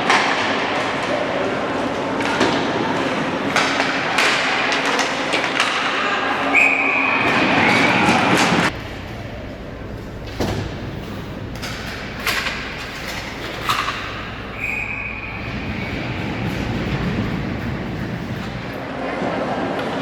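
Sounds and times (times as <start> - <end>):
crowd and rink noise: 0.0 - 20.0
puck knocking against boards: 8.4 - 18.8.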